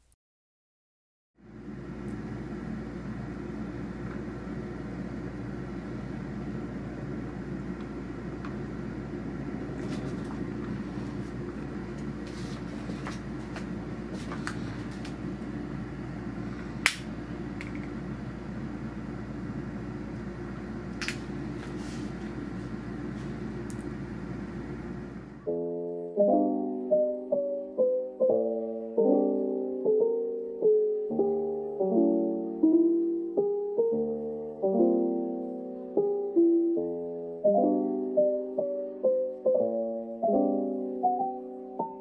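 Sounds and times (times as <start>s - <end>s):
low mechanical drone: 1.4s - 25.5s.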